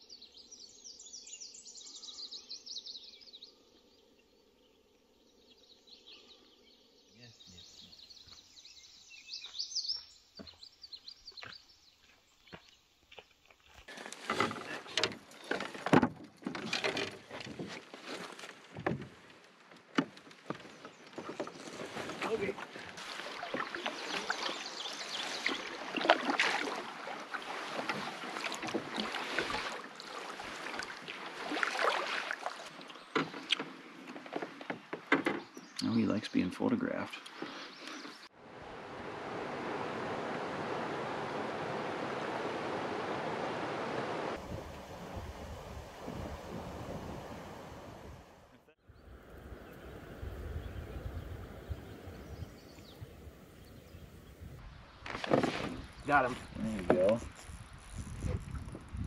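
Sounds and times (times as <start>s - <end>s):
canoe hull knocking and scraping: 13.9s - 24.6s, 25.2s - 35.7s, 55.0s - 59.0s
whitewater rapids rushing: 38.5s - 48.2s.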